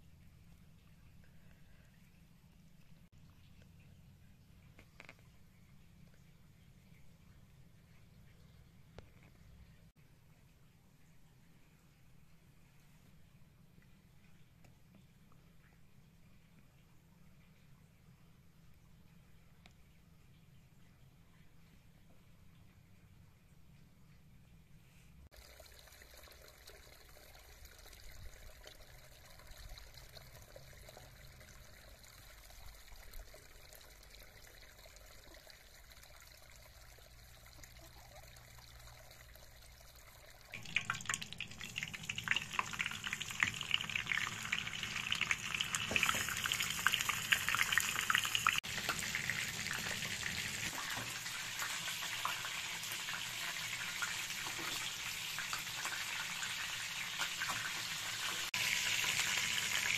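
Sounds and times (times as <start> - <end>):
faint background hum: 0.0 - 59.9
chicken sizzling in frying pan: 40.6 - 59.9.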